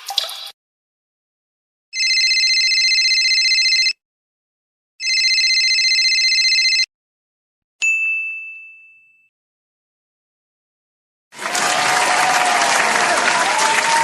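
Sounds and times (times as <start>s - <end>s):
telephone ringing: 2.0s - 4.0s, 5.0s - 6.9s
bright ding sound effect: 7.8s - 9.3s.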